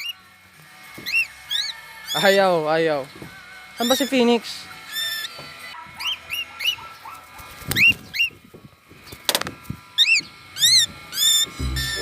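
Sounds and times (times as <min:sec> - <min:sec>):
parrots chirping: 0:01.0 - 0:02.4, 0:03.7 - 0:08.4, 0:10.0 - 0:12.0.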